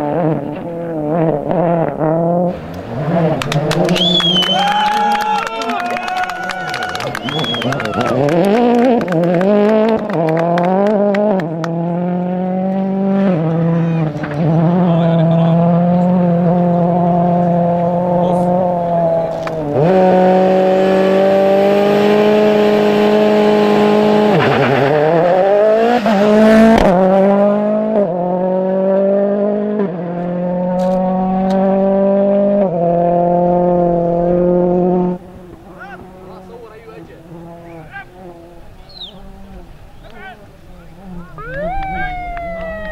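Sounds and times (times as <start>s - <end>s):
rally car engine revving: 0.0s - 5.1s, 6.6s - 42.9s.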